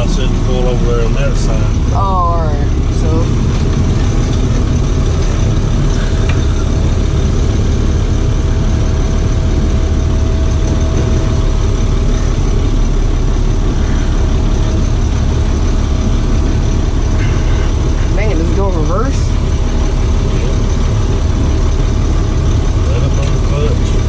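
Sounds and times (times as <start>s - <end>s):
faint steady whine: 0.0s - 24.0s
truck engine running: 0.0s - 24.0s.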